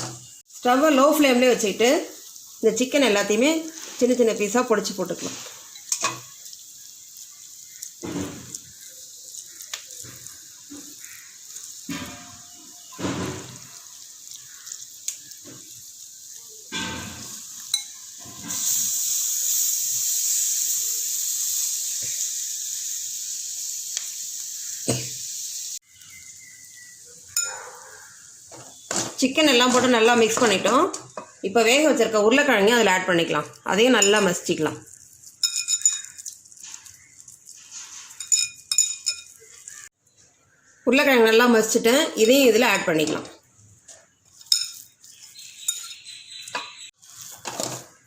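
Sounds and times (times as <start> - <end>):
onions sizzling in a pan: 0.0 - 48.0
spatula knocking and scraping: 28.5 - 31.4.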